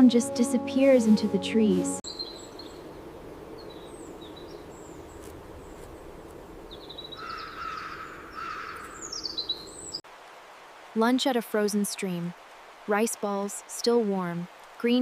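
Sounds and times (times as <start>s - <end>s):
high bird chirps: 2.0s - 2.8s
lower bird calls: 2.0s - 10.0s.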